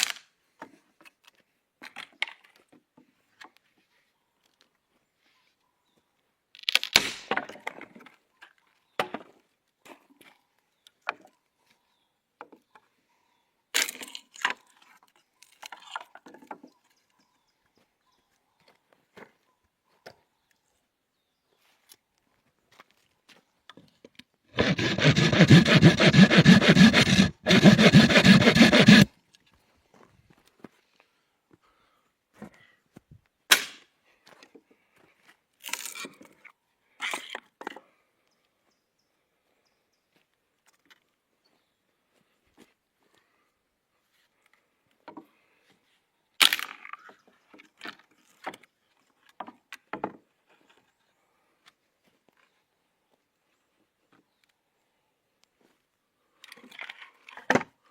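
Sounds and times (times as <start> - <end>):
dry wood cracking: 6.5 - 7.2
saw cutting through wood: 24.5 - 29.1.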